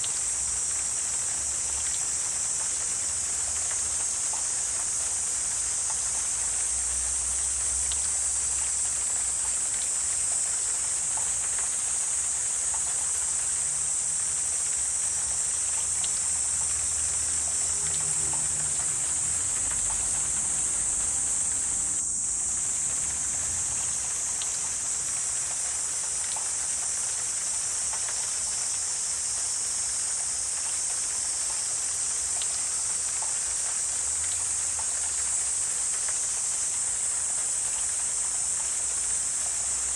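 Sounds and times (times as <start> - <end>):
high-pitched insect chorus: 0.0 - 39.9
soft water-like noise: 0.0 - 39.9
faint ticks: 1.8 - 6.6, 15.7 - 20.4, 23.9 - 39.8.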